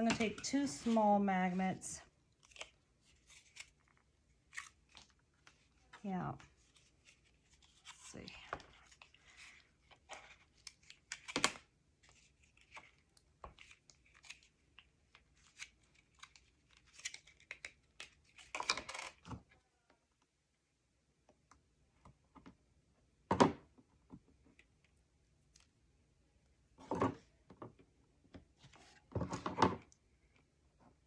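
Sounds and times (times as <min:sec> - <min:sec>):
paper and tape crinkling: 0:02.4 - 0:19.3.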